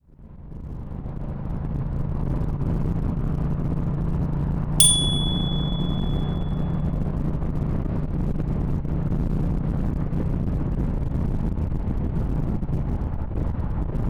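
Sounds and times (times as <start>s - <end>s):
bright ding: 4.8s - 6.6s.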